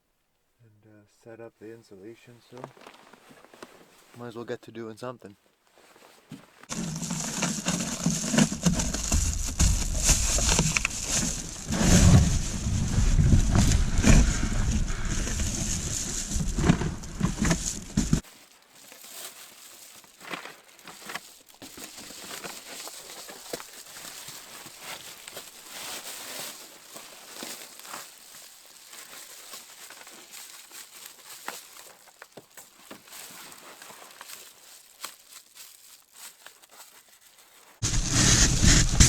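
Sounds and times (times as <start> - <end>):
camping gear rustling and crinkling: 2.2 - 39.0
heavy low rumble: 8.1 - 18.2, 37.8 - 39.0.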